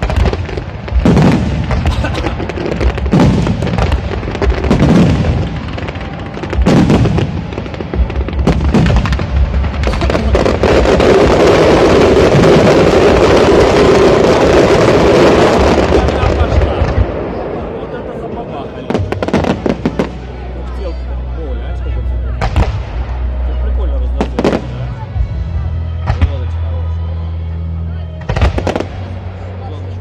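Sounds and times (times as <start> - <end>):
fireworks booms: 0.0 - 17.8, 18.8 - 20.4, 22.4 - 23.0, 28.2 - 29.2
fireworks crackling: 0.0 - 21.2, 28.2 - 30.0.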